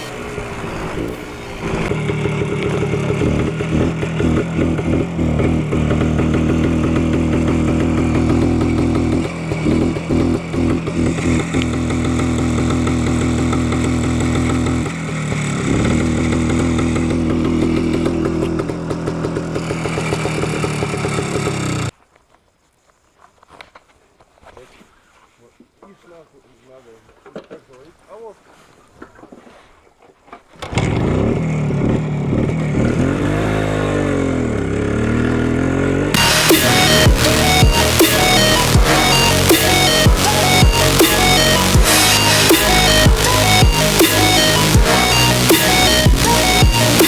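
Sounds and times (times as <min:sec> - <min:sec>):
two-stroke motorcycle engine running: 0:00.0 - 0:21.8.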